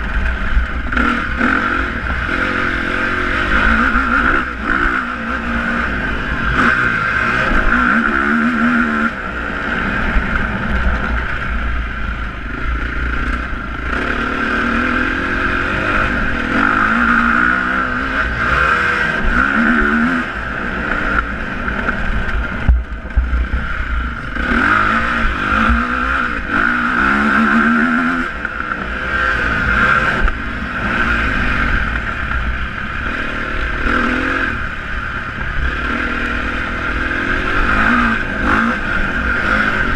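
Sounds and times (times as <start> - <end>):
steady low rumble: 0.0 - 18.6, 20.2 - 27.2
motorcycle engines revving: 0.0 - 39.9.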